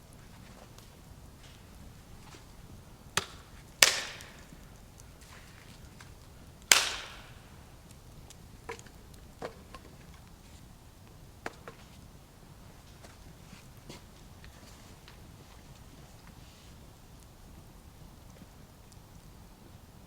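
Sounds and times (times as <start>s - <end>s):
small wooden knocks and snaps: 3.2s - 7.6s, 8.3s - 10.3s
sharp wooden cracks: 3.2s - 8.0s.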